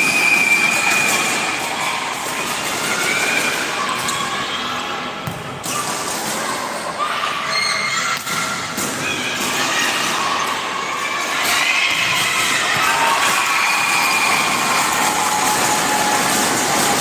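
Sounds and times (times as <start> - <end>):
crowd chatter: 0.0 - 17.0
people shouting: 6.5 - 17.0.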